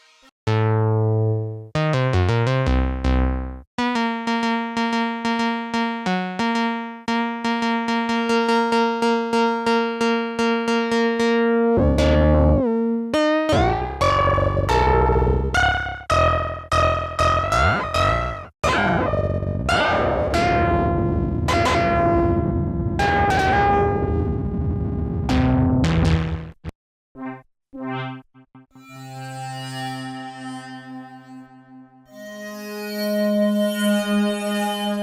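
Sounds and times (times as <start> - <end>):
synthesizer plucked notes: 0.0 - 29.0
deep synth bass: 0.5 - 3.7, 11.7 - 28.6.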